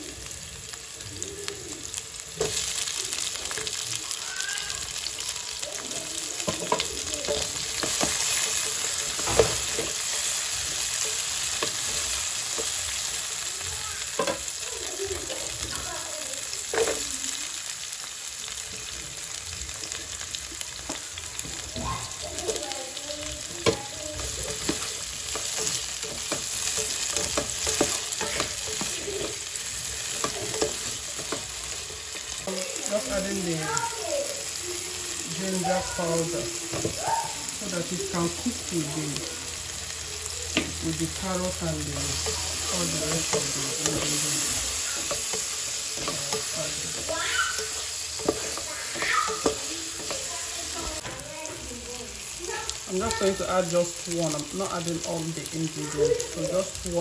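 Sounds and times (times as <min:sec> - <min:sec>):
vegetables sizzling in hot oil: 0:00.0 - 0:57.0
stirring knocks and scrapes: 0:06.4 - 0:13.0, 0:23.5 - 0:32.5, 0:41.5 - 0:51.3.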